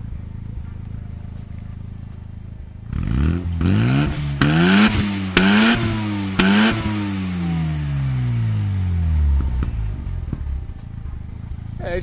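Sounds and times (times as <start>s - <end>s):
exhaust crack: 0.0s - 12.0s
rotary engine revving: 2.8s - 10.8s.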